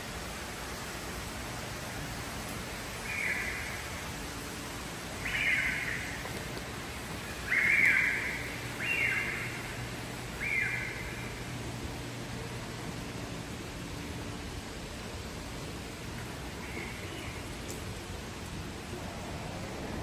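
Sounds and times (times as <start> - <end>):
steady hiss: 0.0 - 20.0
bird calling: 3.0 - 4.1, 5.1 - 6.6, 7.2 - 11.6.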